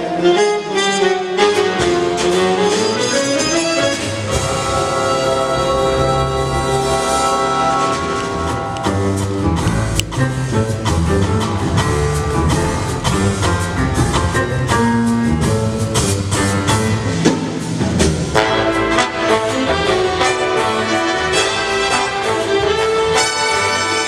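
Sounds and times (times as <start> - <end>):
horn section: 0.0 - 8.9, 18.3 - 24.0
big band jazz: 0.0 - 24.0
drum kit: 0.8 - 24.0.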